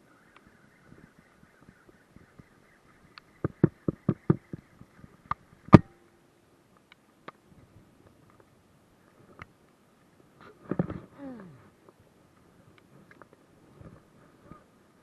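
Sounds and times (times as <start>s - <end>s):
faint ticks: 1.6s - 7.4s.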